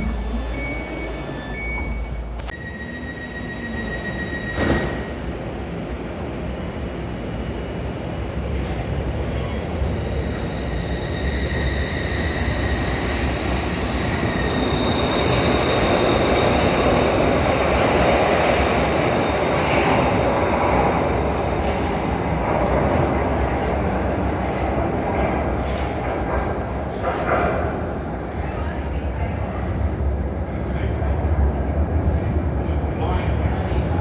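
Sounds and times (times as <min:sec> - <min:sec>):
wheel squeal: 0:00.0 - 0:05.1
train rumbling on rails: 0:00.0 - 0:34.0.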